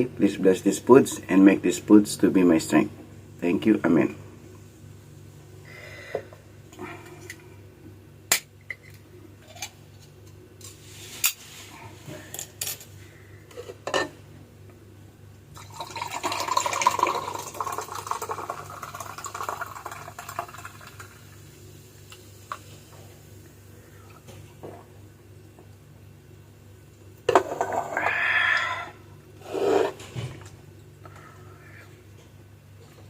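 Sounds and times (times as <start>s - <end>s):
liquid pouring into a glass: 15.5s - 21.4s.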